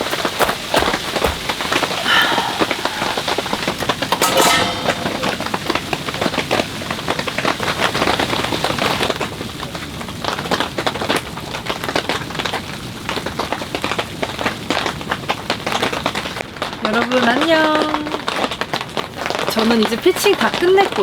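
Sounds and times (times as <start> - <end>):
rain drops pattering: 5.4 - 21.0.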